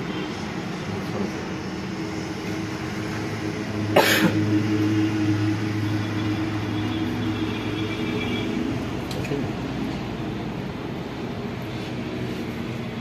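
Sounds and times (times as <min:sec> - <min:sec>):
engine coughing burst: 0:03.9 - 0:04.6.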